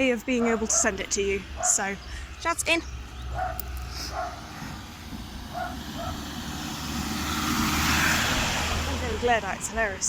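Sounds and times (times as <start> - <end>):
car passing by: 3.8 - 10.0.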